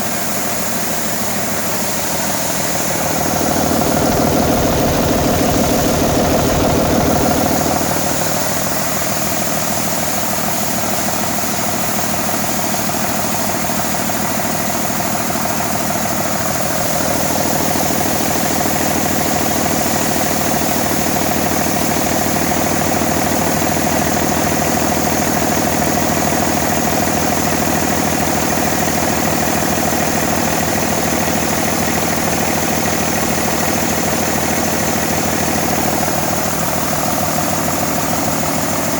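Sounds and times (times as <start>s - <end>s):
diesel engine running: 2.4s - 9.3s.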